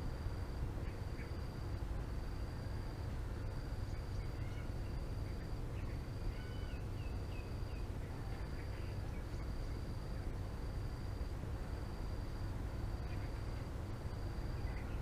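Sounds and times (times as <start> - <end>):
steady low rumble: 0.0 - 15.0
faint bird chirps: 0.8 - 1.5, 2.6 - 10.4, 13.0 - 13.7, 14.4 - 15.0.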